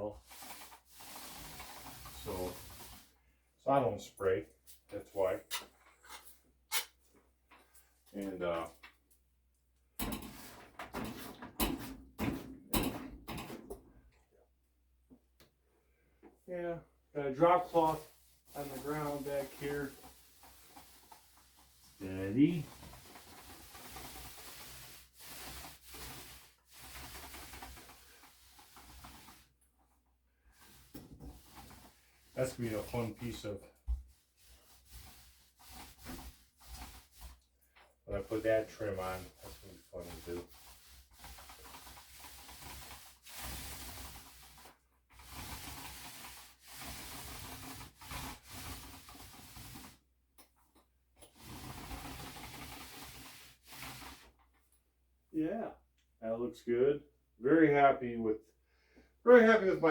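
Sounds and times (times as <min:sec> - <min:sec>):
primer rubbed onto drywall: 0:00.0 - 0:03.3, 0:17.4 - 0:29.6, 0:30.3 - 0:50.1, 0:51.3 - 0:54.4.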